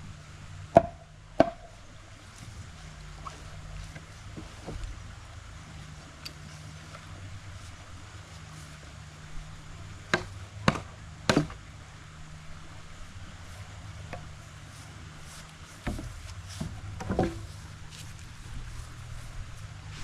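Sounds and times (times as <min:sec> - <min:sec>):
steady low hum: 0:00.0 - 0:20.0
sharp knocks: 0:00.7 - 0:01.7, 0:10.1 - 0:11.6.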